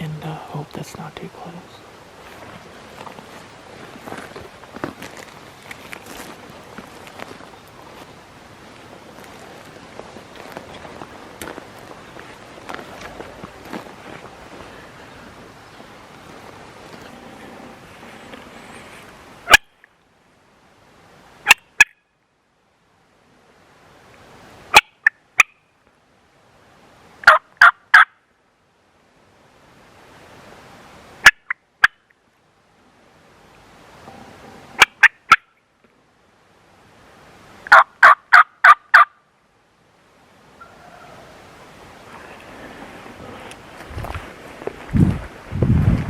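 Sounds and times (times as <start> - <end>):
wild turkeys gobbling: 27.2 - 28.1, 34.8 - 35.6, 37.7 - 39.2, 40.6 - 41.4.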